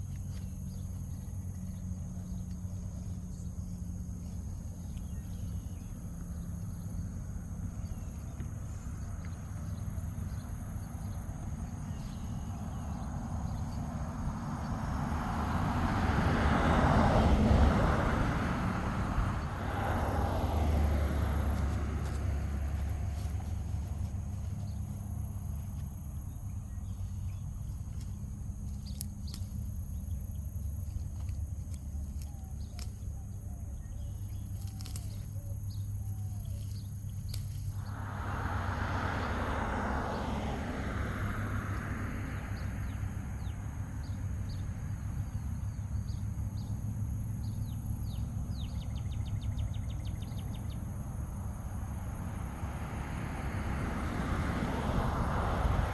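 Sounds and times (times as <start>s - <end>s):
rushing noise: 37.7s - 41.7s
low rumble: 37.7s - 43.1s.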